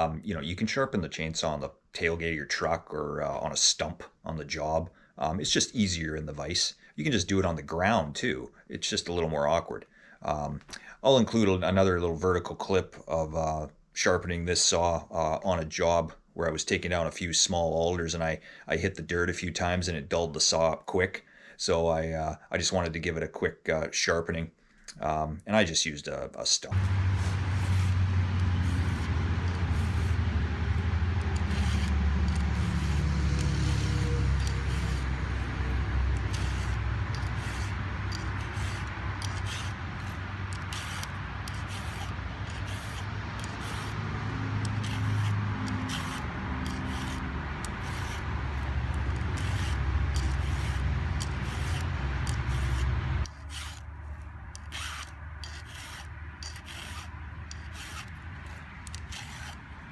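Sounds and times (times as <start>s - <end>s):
file rasping on chain cutters: 26.7s - 59.7s.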